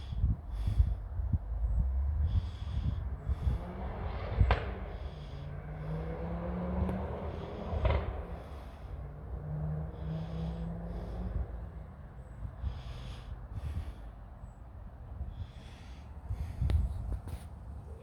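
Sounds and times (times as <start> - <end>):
footsteps outdoors: 16.6 - 18.0.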